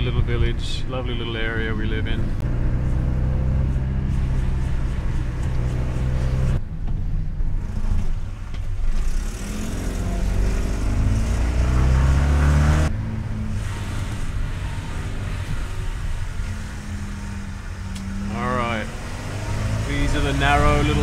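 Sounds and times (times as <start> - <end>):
car engine driving: 0.0 - 21.0
road noise: 0.0 - 21.0.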